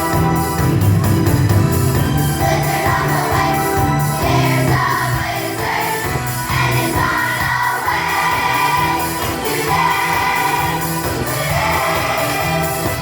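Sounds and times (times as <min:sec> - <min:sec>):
musical accompaniment: 0:00.0 - 0:13.0
children's choir singing: 0:01.9 - 0:13.0.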